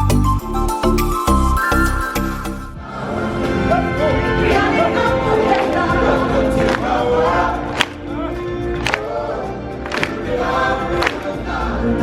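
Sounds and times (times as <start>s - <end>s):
choir singing over music: 2.8s - 12.0s.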